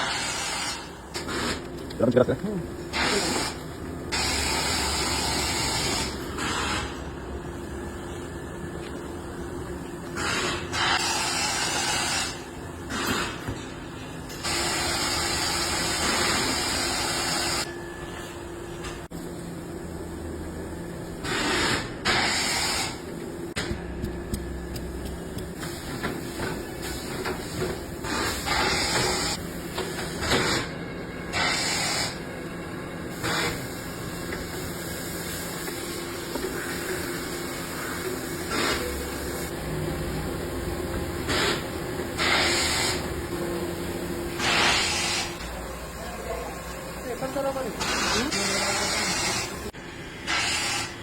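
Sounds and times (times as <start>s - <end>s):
low machine hum: 22.9s - 50.2s.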